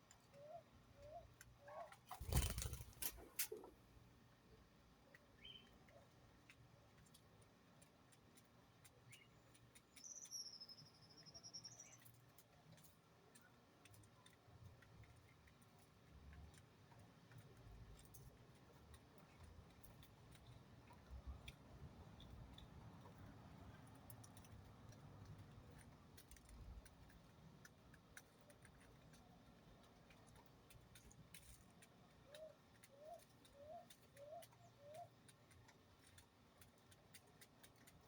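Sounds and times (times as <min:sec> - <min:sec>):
small bird whistle: 0:10.0 - 0:12.0.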